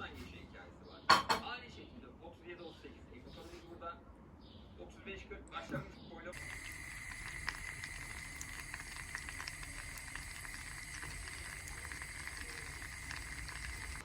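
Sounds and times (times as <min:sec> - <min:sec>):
food sizzling in a pan: 0:06.3 - 0:14.0.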